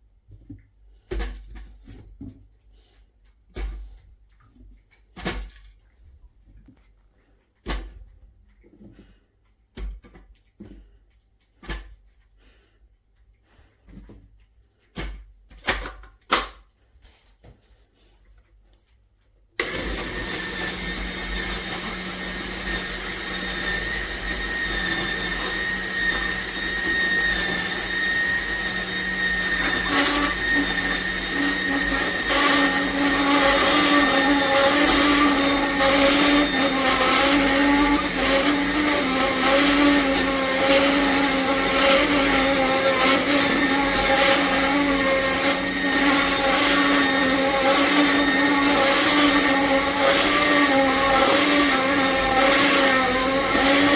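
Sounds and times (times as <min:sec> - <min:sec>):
juicer motor running: 0:19.6 - 0:53.9.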